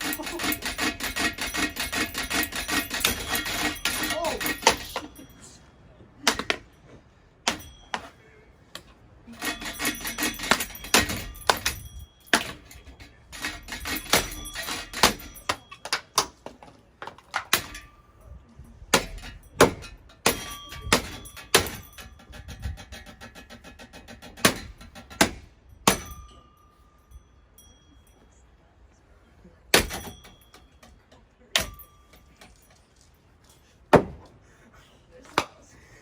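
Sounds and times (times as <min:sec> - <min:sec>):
metal rattling: 0:00.0 - 0:27.8, 0:29.7 - 0:34.4
hard blows on metal housing: 0:08.8 - 0:16.3, 0:17.3 - 0:26.4.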